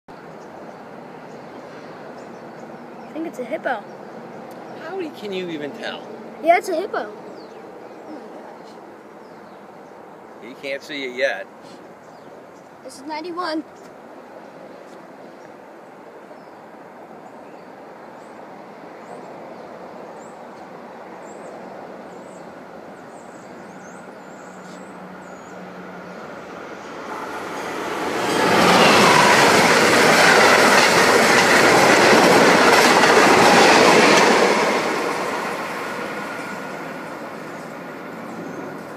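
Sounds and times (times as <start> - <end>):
train wheels rumbling on rails: 23.6 - 38.9.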